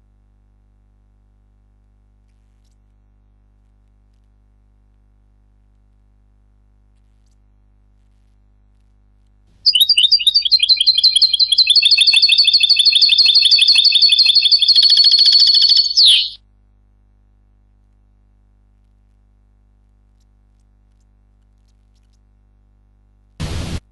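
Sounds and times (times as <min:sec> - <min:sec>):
bird song played back: 0:09.7 - 0:16.4.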